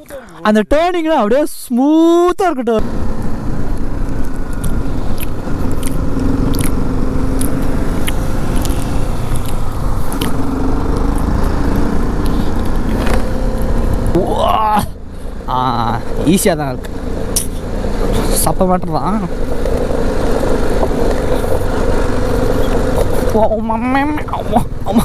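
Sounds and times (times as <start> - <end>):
road noise: 0.0 - 25.0
motorcycle engine running: 2.8 - 25.0
snack crunching being chewed: 4.2 - 11.3.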